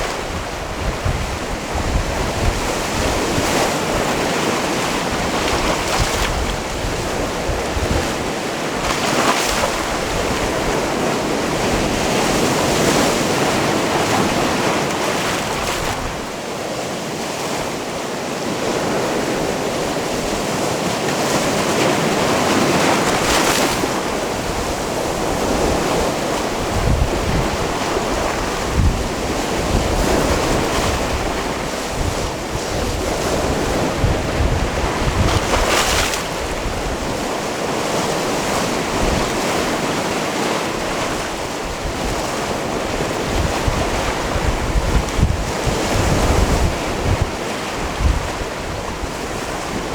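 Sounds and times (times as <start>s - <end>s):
wind buffeting microphone: 0.0s - 16.4s, 21.3s - 49.9s
waves washing onto rocky shore: 0.0s - 49.9s.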